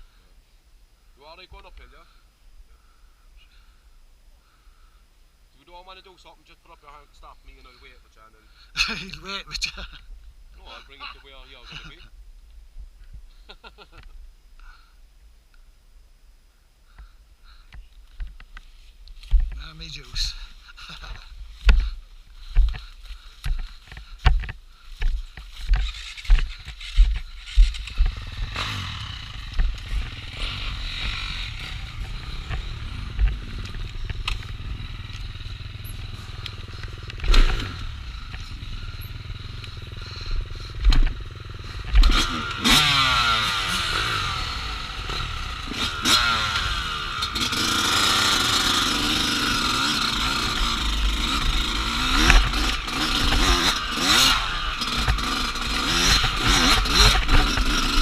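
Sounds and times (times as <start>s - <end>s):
dirt bike engine revving: 25.6s - 58.0s.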